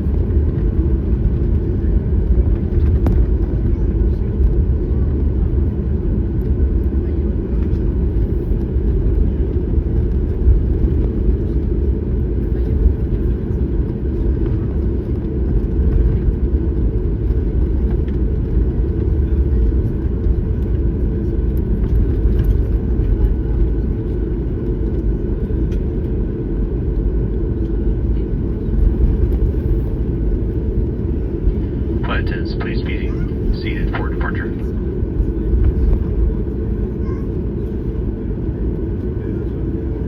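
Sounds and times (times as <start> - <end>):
airliner cabin engine rumble: 0.0 - 40.0.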